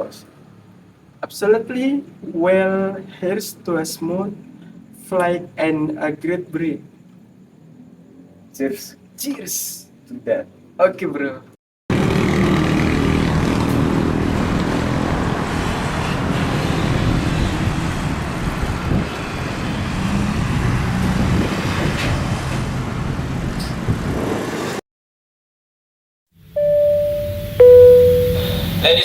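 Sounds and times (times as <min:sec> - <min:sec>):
electronic chime tone: 0:26.6 - 0:28.8.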